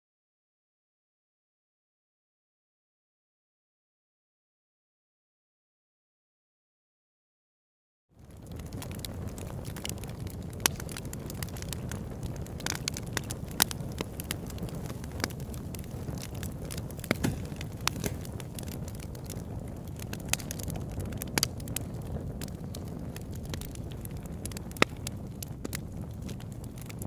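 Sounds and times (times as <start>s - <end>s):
low fire rumble: 8.2s - 27.0s
wood fire crackling and popping: 8.2s - 27.0s.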